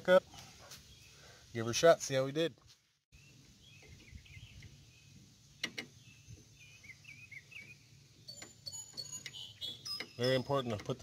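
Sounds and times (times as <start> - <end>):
faint bird chirps: 3.2 - 10.4.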